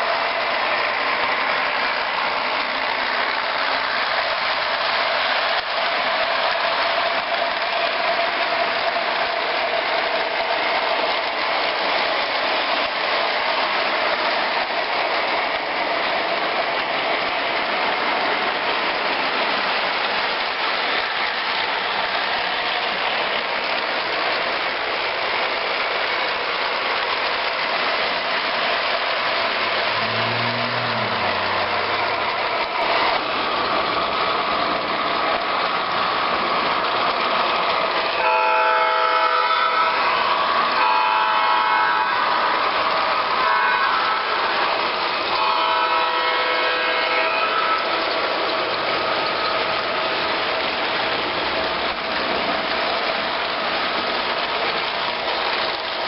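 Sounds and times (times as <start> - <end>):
train running by: 0.0 - 56.0
steady high tone: 29.9 - 32.5.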